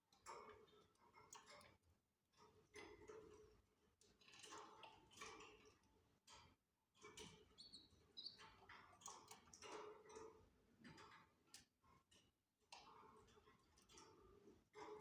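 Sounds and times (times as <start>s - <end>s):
canaries chirping: 7.6s - 8.4s.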